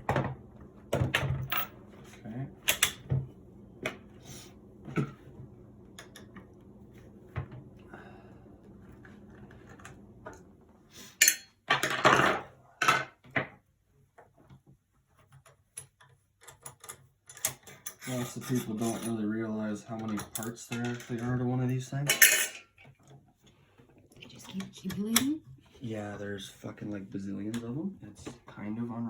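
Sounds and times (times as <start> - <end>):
clatter and scrape: 15.2 - 19.3.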